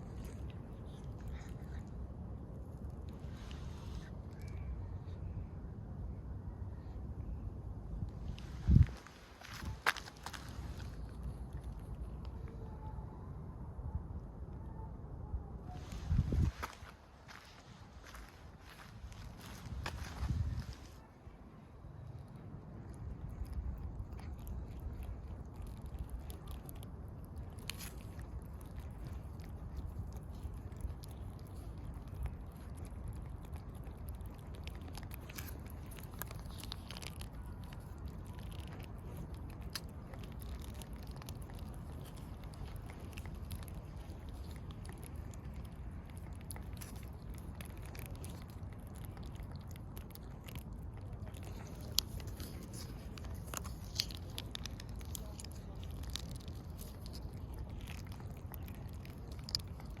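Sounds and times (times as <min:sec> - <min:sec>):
cat chewing crunchy food: 0:00.0 - 0:04.6, 0:08.3 - 0:12.6, 0:21.9 - 1:00.0.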